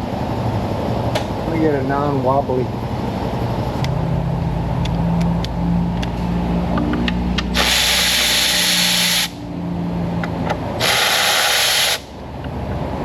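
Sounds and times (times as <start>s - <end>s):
power tool spinning bolts: 7.6s - 9.3s, 10.8s - 12.0s.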